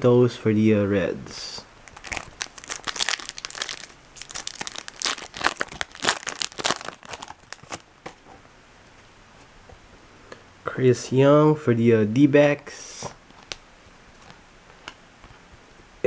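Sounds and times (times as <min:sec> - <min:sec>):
foil wrapper crinkling and tearing: 0:01.8 - 0:07.9.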